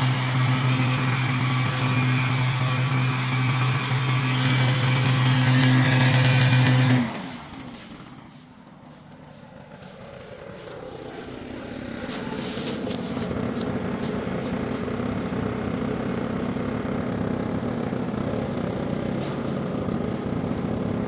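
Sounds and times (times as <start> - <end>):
engine running: 0.0 - 21.0
light clicks and scrapes: 7.8 - 15.4.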